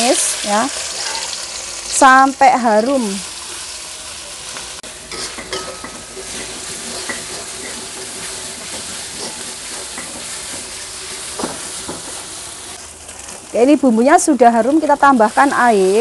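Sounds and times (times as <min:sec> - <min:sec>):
paste sizzling in oil: 0:00.0 - 0:16.0
metal spatula scraping wok: 0:00.8 - 0:01.8, 0:04.8 - 0:13.5.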